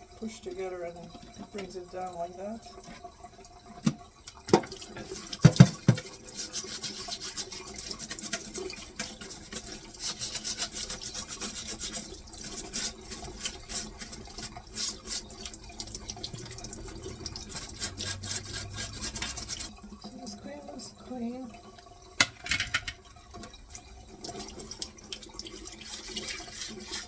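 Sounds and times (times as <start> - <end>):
brush scrubbing a filter screen: 5.0 - 20.6, 24.3 - 27.0
plastic clacks: 22.2 - 23.0.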